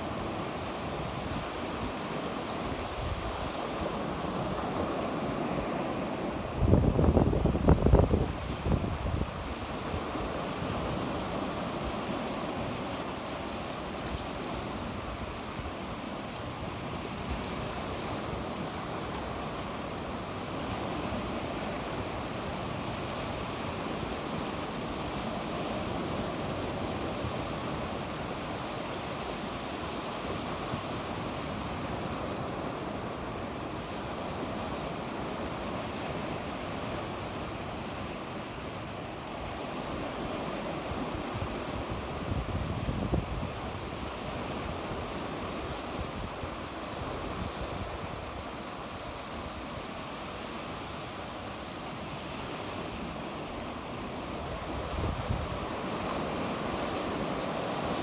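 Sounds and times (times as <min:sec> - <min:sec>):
sea waves breaking on shore: 0:00.0 - 0:58.0
wind on microphone: 0:00.9 - 0:12.2, 0:40.8 - 0:49.6, 0:54.1 - 0:58.0.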